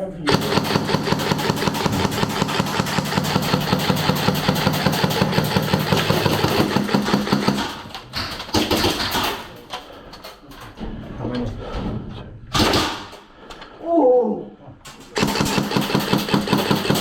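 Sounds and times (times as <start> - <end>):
airsoft gun firing bursts: 0.3 - 9.5, 15.2 - 17.0.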